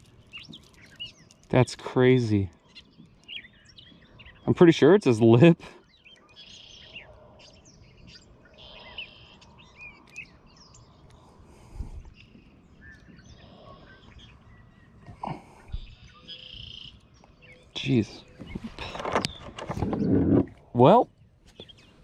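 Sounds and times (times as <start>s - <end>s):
songbirds chirping and warbling: 0.0s - 22.0s.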